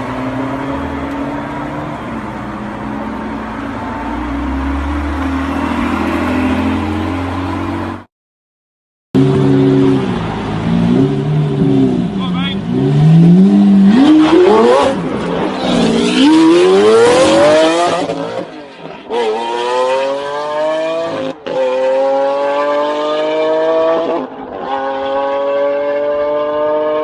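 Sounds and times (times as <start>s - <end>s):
car engine revving and accelerating: 9.2s - 27.0s.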